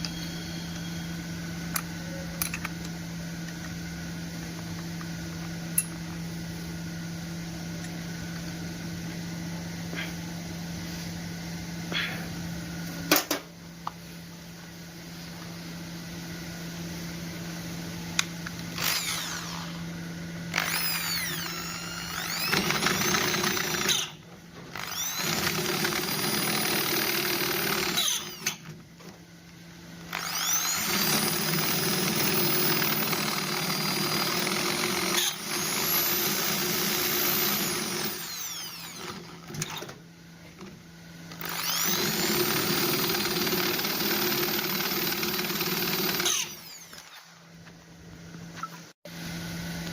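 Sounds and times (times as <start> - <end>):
electric hand drill running: 18.7 - 28.7, 30.1 - 39.9, 41.3 - 47.4.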